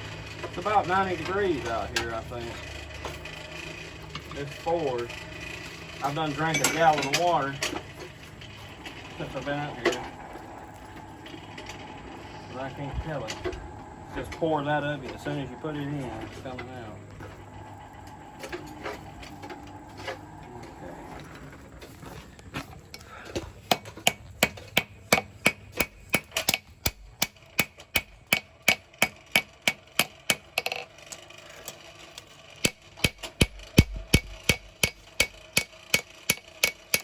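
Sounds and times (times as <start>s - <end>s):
hammer ringing on anvil: 6.5s - 7.1s, 33.0s - 37.0s.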